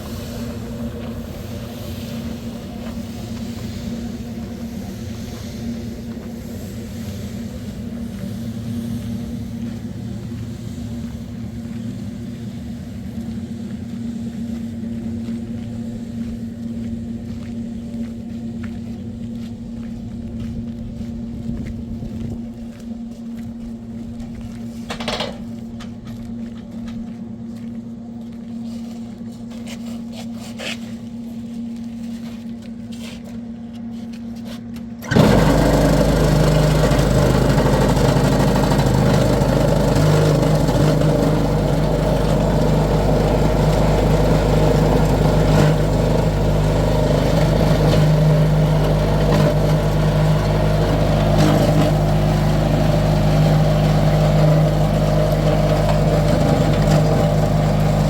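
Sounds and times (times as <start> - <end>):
vehicle engine running: 35.0 - 58.0.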